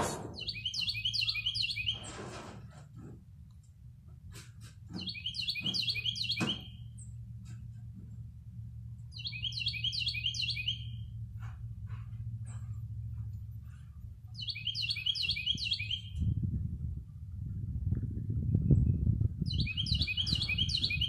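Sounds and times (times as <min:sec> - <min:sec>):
bird chirping: 0:00.4 - 0:02.2, 0:04.9 - 0:07.2, 0:09.1 - 0:11.2, 0:12.5 - 0:16.4, 0:19.5 - 0:21.0
steady low hum: 0:06.7 - 0:21.0.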